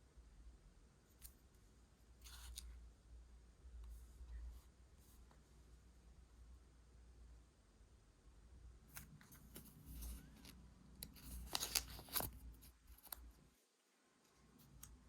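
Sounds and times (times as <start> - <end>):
paper rustling: 9.3 - 13.2.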